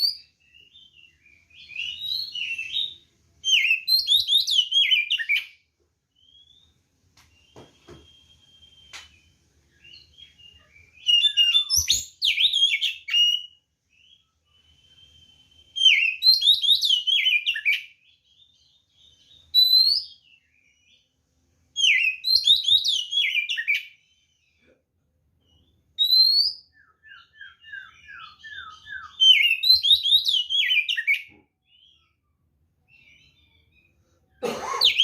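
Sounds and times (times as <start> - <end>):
bird whistled song: 0.0 - 21.1, 21.7 - 24.6, 25.4 - 34.0
faint thin whistles: 14.4 - 16.0.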